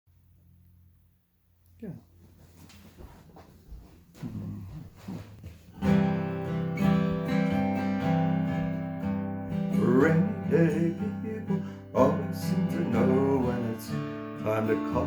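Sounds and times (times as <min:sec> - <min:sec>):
acoustic guitar: 0:04.2 - 0:15.0.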